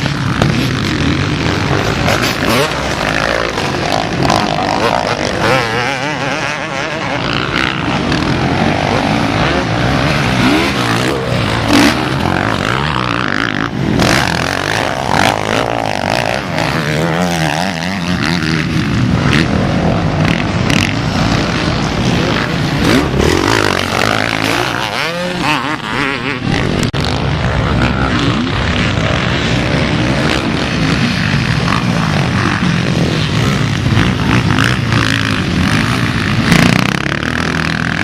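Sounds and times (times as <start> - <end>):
motocross bike engines racing: 0.0 - 38.0.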